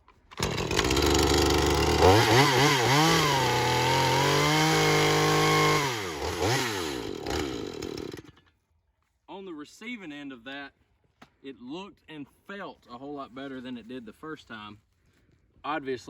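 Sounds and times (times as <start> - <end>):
chainsaw engine revving: 0.3 - 8.4.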